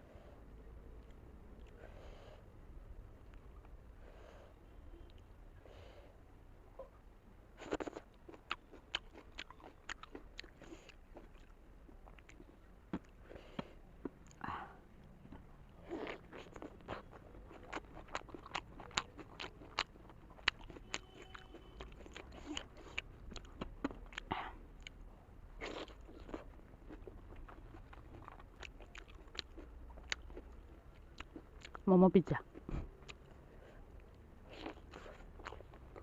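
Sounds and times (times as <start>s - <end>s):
dumpling bitten and chewed: 7.6s - 14.4s, 15.0s - 36.0s.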